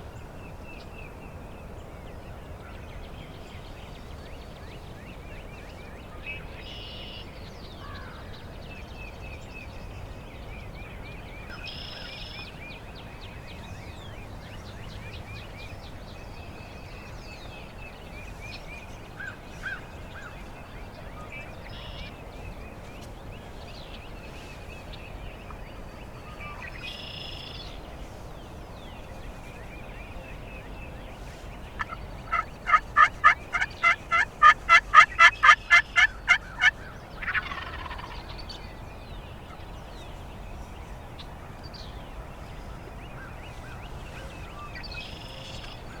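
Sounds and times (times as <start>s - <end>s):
faint songbirds chirping: 0.0s - 46.0s
turkey yelps: 31.8s - 36.7s.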